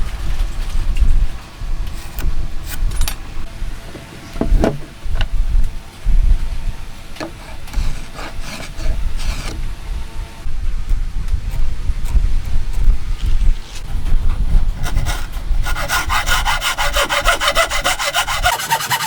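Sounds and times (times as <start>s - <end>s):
wind rumble on microphone: 0.0s - 18.5s
short scrape: 7.4s - 9.6s.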